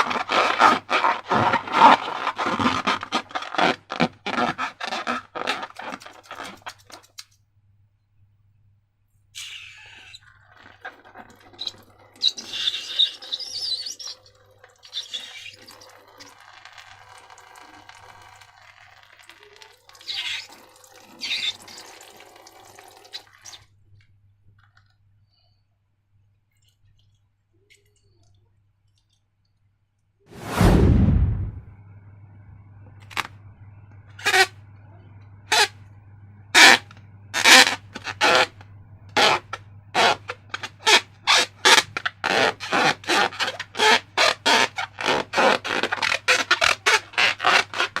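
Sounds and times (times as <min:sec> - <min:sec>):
wet slime squelching: 0:00.0 - 0:07.2.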